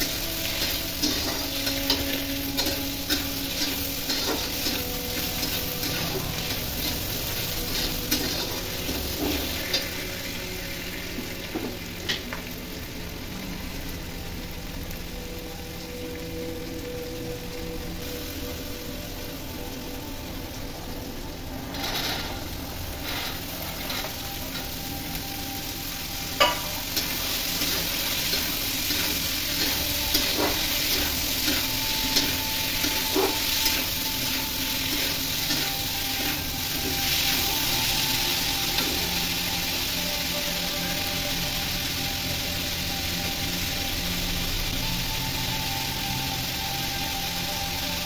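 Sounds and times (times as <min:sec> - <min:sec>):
vegetables sizzling in oil: 0:00.0 - 0:48.0
spatula scraping pan: 0:26.4 - 0:37.5.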